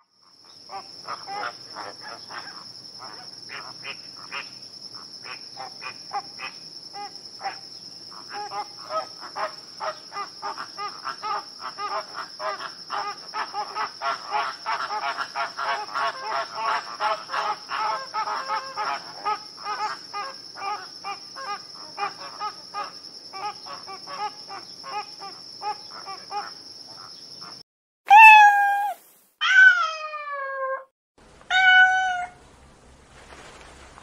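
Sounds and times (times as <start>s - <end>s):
cat meowing: 28.1s - 30.9s, 31.5s - 32.4s.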